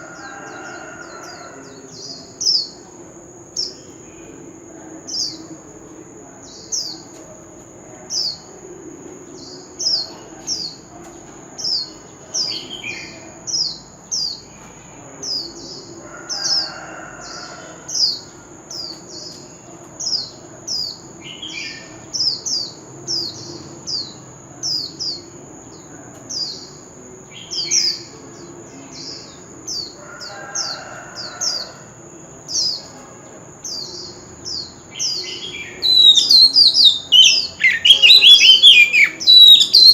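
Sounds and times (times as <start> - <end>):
bird singing whistles: 35.9 - 39.9.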